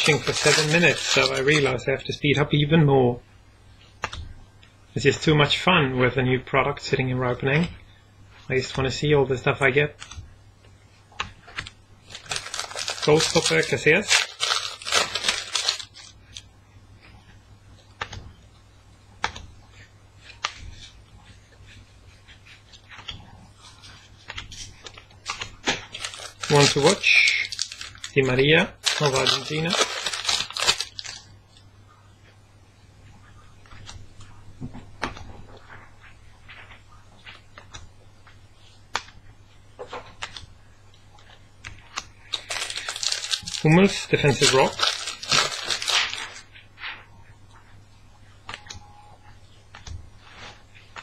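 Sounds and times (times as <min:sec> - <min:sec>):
cards rustling: 0:00.0 - 0:01.8, 0:11.2 - 0:16.5, 0:22.4 - 0:31.3, 0:41.7 - 0:46.5
faint low hum: 0:00.0 - 0:51.0.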